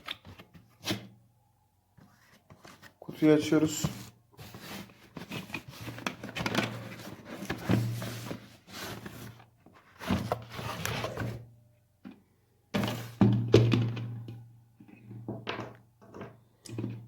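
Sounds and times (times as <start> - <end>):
cardboard packaging rustling: 2.1 - 11.4.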